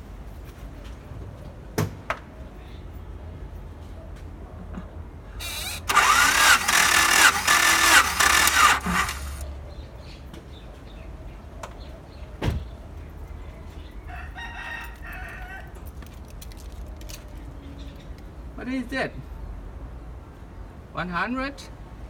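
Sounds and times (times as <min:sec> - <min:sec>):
starter motor cranking: 0:05.4 - 0:09.4.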